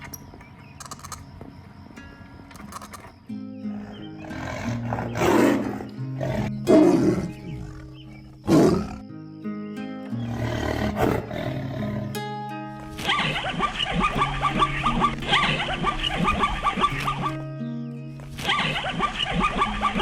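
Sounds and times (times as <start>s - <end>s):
background music: 2.0s - 20.0s
animal roaring calls: 3.6s - 9.1s, 10.2s - 12.2s.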